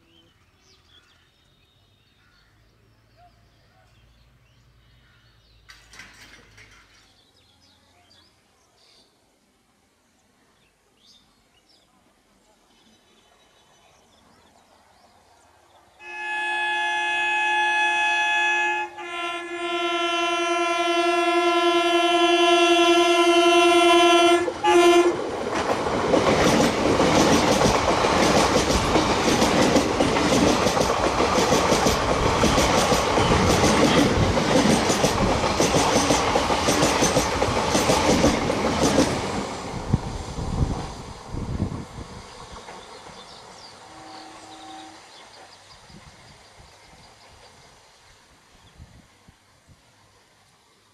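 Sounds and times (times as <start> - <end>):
wheels clacking over rail joints: 5.6 - 7.2, 24.6 - 39.7, 42.4 - 43.6
train horn blasts: 16.0 - 25.2, 43.9 - 45.2.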